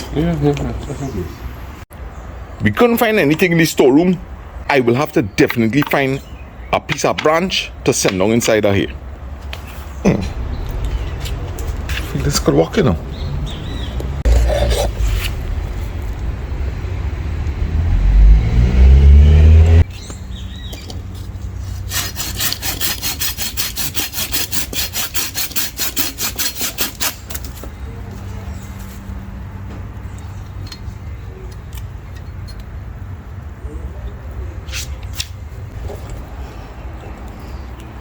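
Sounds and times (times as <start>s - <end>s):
saw cutting wooden branch: 21.5s - 27.6s.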